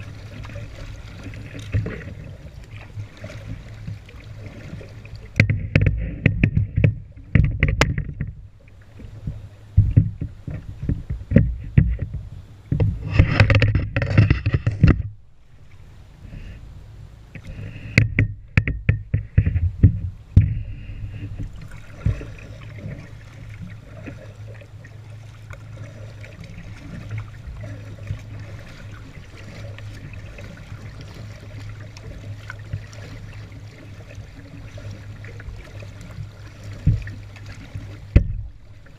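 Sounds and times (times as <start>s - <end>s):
water washing: 0.0s - 7.9s, 19.4s - 38.9s
paddle splashing water: 0.0s - 38.9s
sharp knocks: 17.9s - 20.6s.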